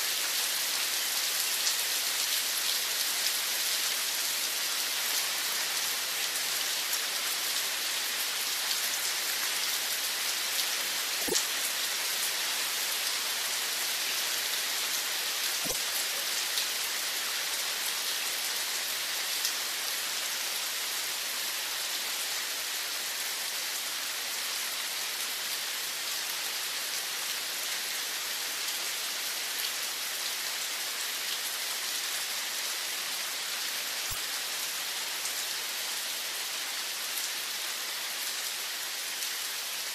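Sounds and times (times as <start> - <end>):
steady rain falling: 0.0 - 39.9
loud single raindrops: 11.2 - 11.7, 15.6 - 16.2.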